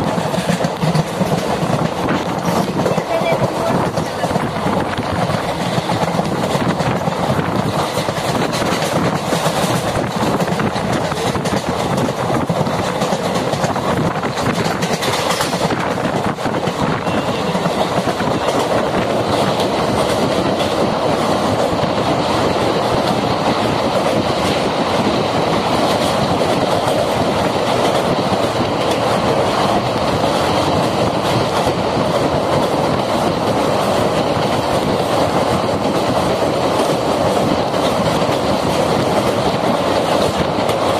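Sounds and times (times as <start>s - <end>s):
train wheels clattering on rails: 0.0s - 40.9s.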